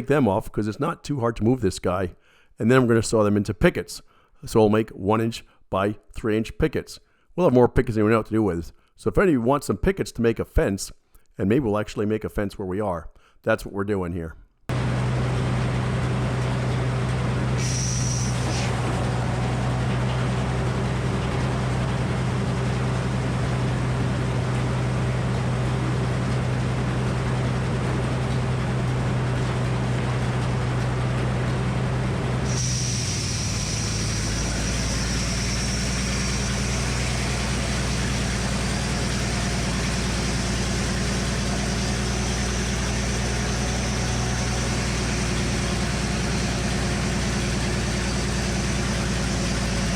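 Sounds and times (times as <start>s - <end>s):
sawmill engine and spinning blade: 14.7s - 49.9s
high whine: 32.4s - 46.5s.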